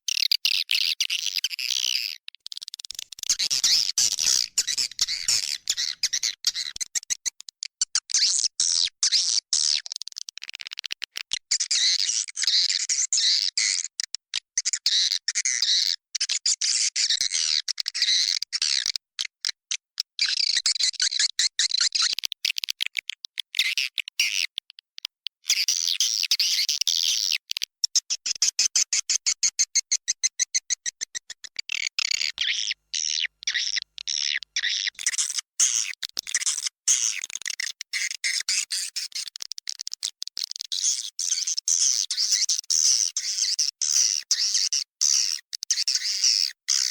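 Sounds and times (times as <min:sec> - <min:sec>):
swiftlets twittering and chirping: 0:00.1 - 0:07.3, 0:40.6 - 0:46.9.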